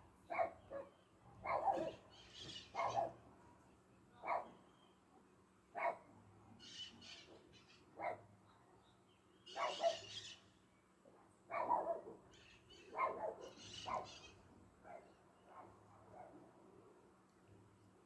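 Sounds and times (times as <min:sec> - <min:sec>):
dogs barking: 0:00.3 - 0:02.0, 0:02.8 - 0:03.2, 0:09.6 - 0:10.1, 0:11.5 - 0:12.1, 0:13.0 - 0:14.1.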